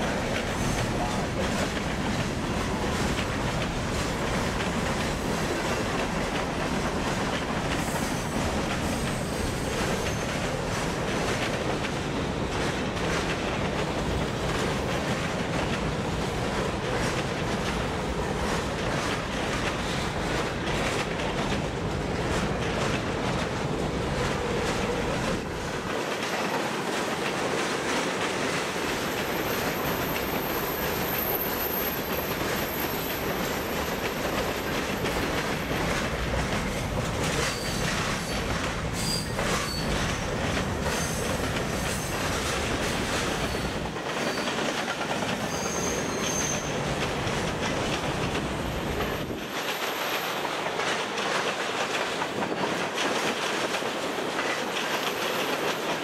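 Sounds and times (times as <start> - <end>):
high-pitched wheel squeal: 45.5 - 46.7.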